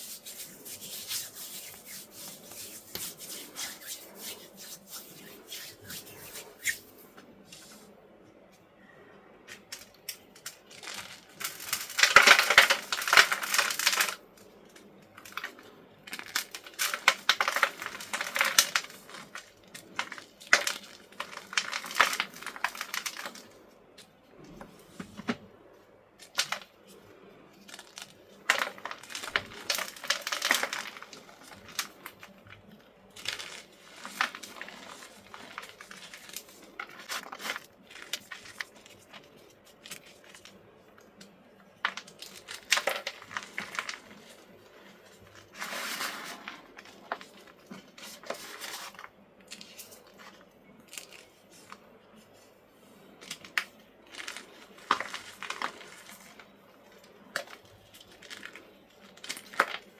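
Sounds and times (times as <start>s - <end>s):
chalk crunching and crumbling: 0.0s - 7.0s, 33.2s - 40.5s.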